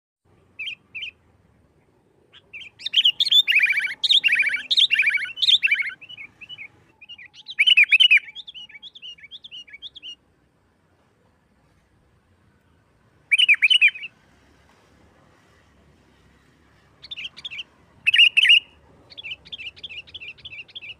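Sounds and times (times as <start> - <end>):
bulbul singing chattering notes: 2.3 - 10.2, 17.0 - 20.9.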